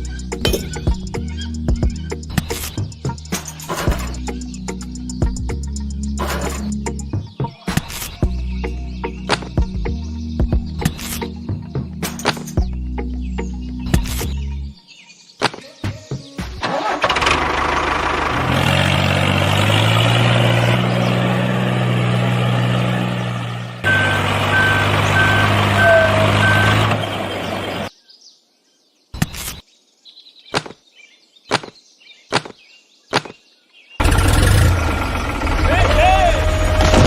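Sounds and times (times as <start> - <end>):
small diesel engine running: 16.6 - 27.9, 34.0 - 37.0.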